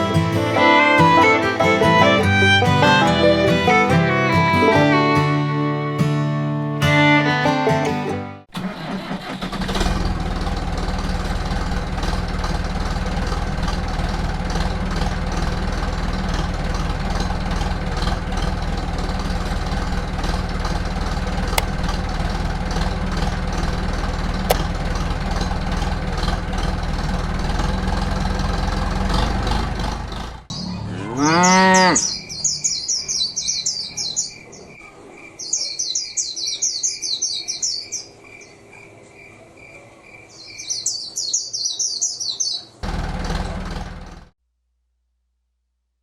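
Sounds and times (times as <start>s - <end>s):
engine idling: 0.0s - 4.7s, 8.5s - 30.5s, 42.8s - 44.4s
engine starting: 8.5s - 30.6s, 42.8s - 44.4s.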